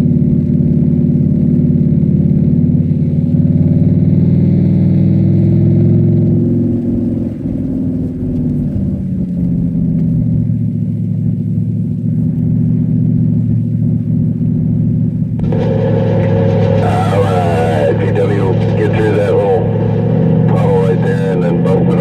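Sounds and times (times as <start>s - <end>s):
car engine pulling under load: 0.0s - 22.0s
faint high whine: 5.9s - 22.0s.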